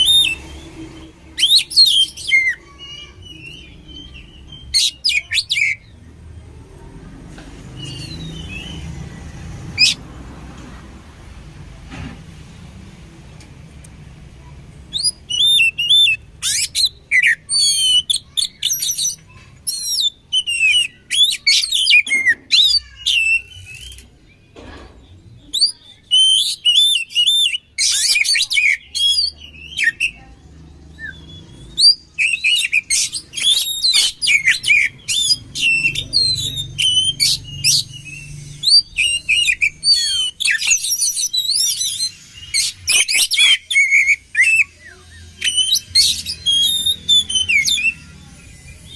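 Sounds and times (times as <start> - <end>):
bird singing whistles and trills: 0.0 - 5.9, 14.4 - 24.1, 25.4 - 48.9.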